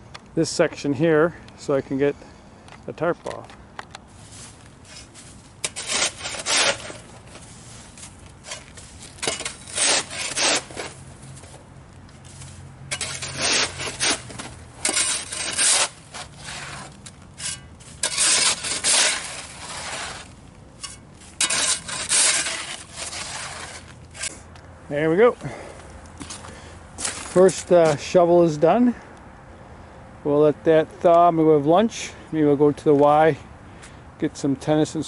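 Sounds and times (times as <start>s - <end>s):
shovel scraping snow and ice: 4.2s - 11.6s, 12.2s - 24.5s.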